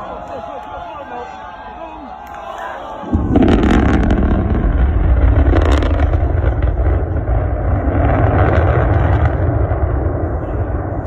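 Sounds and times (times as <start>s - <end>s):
rocket launch roar with crackling: 3.0s - 11.0s.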